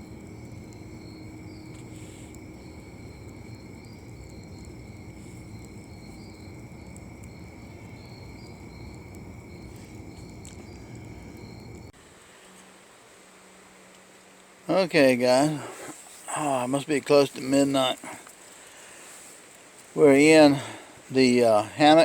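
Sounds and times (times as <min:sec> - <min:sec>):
low rumble of wind: 0:00.0 - 0:12.0
insects trilling: 0:00.0 - 0:14.4, 0:15.0 - 0:22.0.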